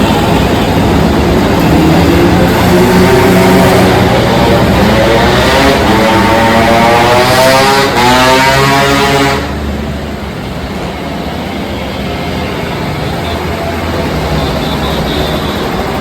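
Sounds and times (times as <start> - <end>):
moped engine revving: 0.8 - 9.2.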